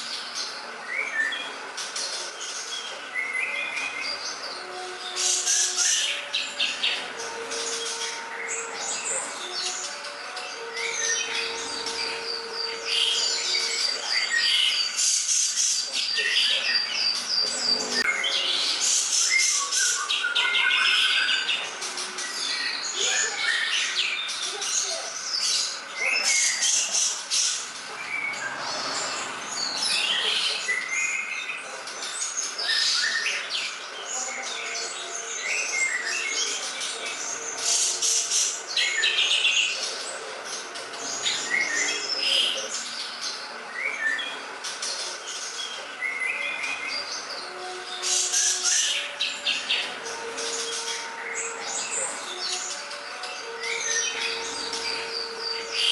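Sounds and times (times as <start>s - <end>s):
bird singing chirps and whistles: 2.4s - 28.6s.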